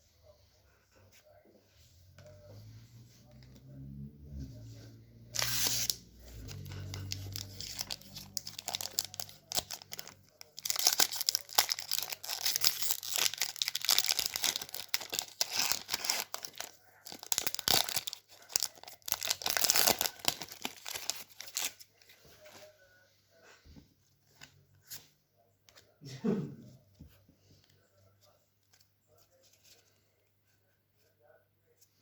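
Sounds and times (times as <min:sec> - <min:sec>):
foil wrapper tearing and crinkling: 0:06.9 - 0:21.8.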